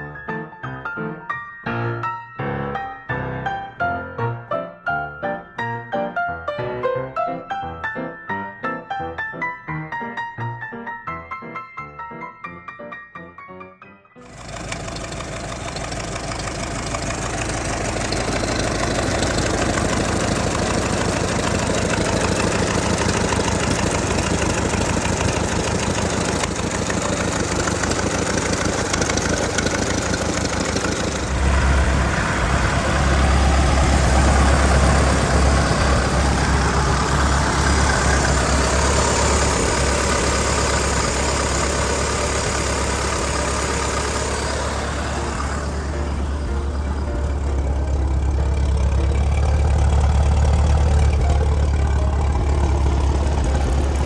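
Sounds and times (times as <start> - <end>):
car engine running: 14.2 - 54.0.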